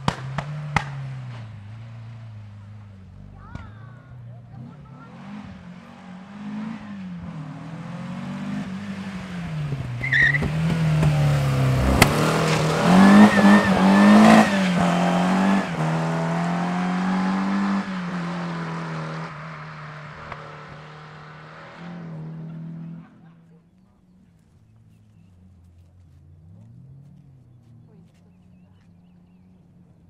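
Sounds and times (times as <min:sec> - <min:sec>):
car engine revving through gears: 0:04.5 - 0:23.2.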